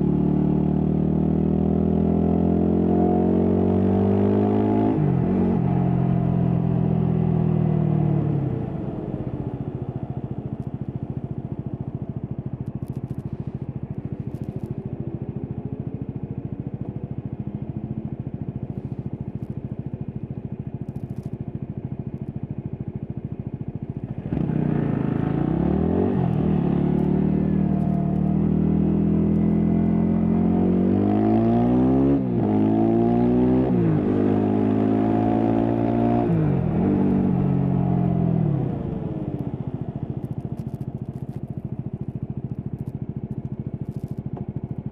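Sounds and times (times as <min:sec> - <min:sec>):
motorcycle engine revving: 0:00.0 - 0:09.6, 0:23.8 - 0:44.9.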